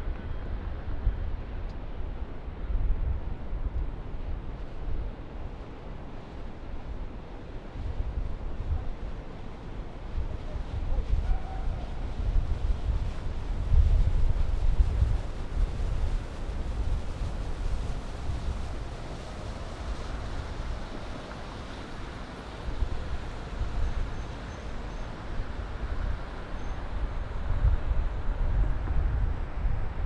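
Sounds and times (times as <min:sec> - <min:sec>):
wind gusting on microphone: 0:06.5 - 0:30.0
distant city traffic: 0:15.5 - 0:29.7.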